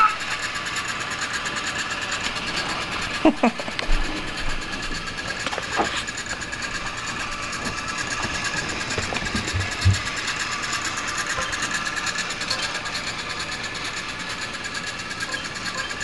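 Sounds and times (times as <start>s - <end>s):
toy train motor whir: 0.0s - 16.0s.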